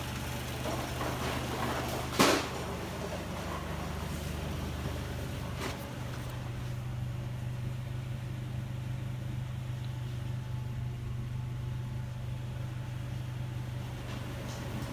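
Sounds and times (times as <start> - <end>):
engine idling with lifter tick: 4.8 - 14.9.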